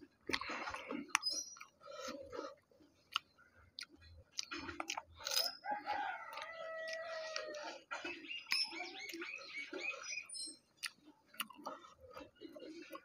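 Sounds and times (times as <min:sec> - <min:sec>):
crunching fried shells: 0:00.1 - 0:10.0.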